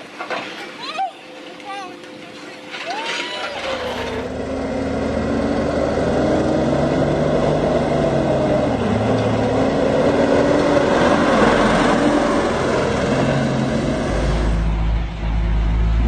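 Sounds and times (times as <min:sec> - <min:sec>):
road noise: 0:03.4 - 0:16.0
vehicle engine running: 0:03.6 - 0:16.0.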